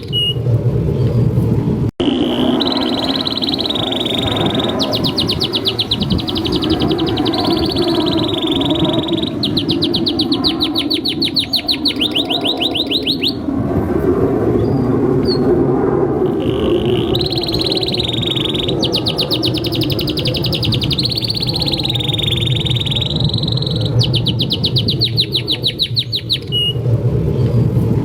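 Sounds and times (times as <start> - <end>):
canary singing: 2.0 - 13.5, 16.3 - 26.8.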